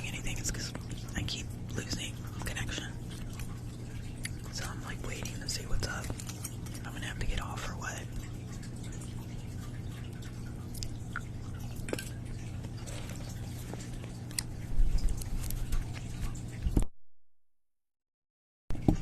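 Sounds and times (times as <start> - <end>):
low electrical hum: 0.0 - 16.9, 18.7 - 19.0
chewing and mouth clicks: 0.6 - 7.1, 8.1 - 16.6.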